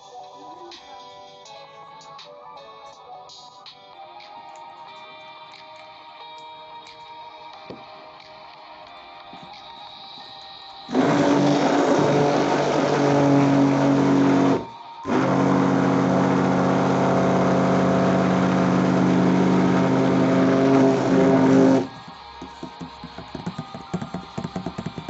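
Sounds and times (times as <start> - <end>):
electric mixer motor running: 10.9 - 23.7.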